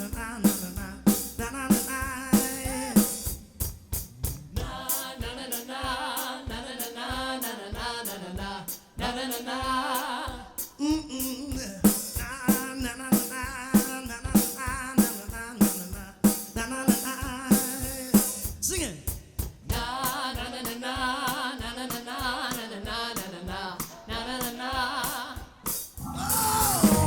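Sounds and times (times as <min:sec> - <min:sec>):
drum kit beat: 0:00.0 - 0:27.0
soul band playing: 0:26.0 - 0:27.0
vibrato lead line: 0:26.0 - 0:27.0.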